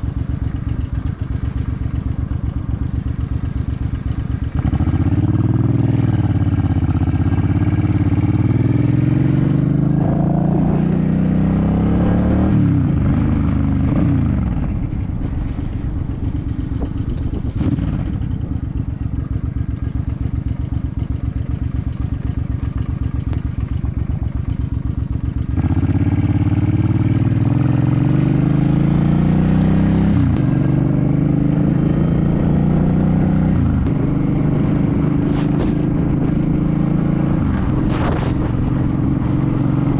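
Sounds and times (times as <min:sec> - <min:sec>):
motorcycle engine idling: 0:00.0 - 0:10.1, 0:12.6 - 0:28.5
motorcycle engine accelerating: 0:00.0 - 0:39.9.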